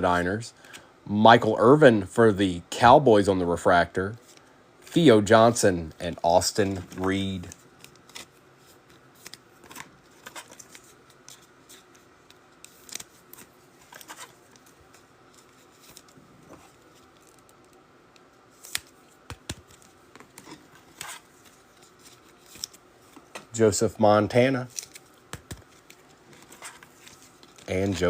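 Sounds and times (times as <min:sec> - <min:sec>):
trading cards clicking and scraping: 0:06.1 - 0:23.7, 0:24.6 - 0:28.0
card snaps: 0:24.8 - 0:25.7.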